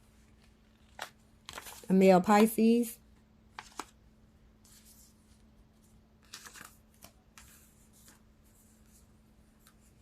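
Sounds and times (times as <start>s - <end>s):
cards rustling: 0.4s - 2.5s, 3.5s - 4.0s, 6.2s - 9.0s.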